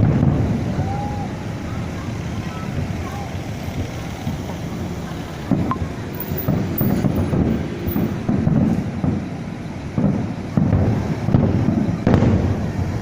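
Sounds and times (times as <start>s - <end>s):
fireworks booming: 0.0s - 13.0s
wind buffeting microphone: 0.0s - 13.0s.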